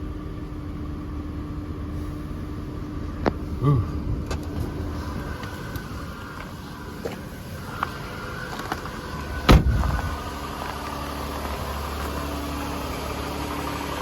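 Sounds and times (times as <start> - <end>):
car engine idling: 0.0 - 14.0
loud thump: 9.5 - 10.3.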